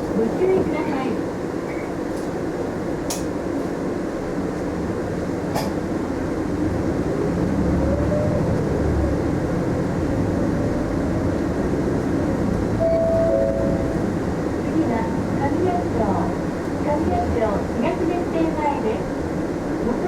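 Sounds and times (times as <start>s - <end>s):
road rumble: 4.3s - 20.0s
bus engine accelerating: 5.2s - 20.0s.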